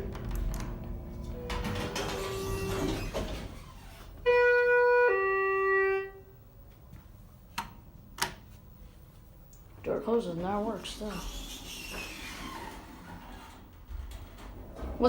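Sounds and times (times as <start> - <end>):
elevator car running noise: 0.0 - 6.0, 9.9 - 15.0.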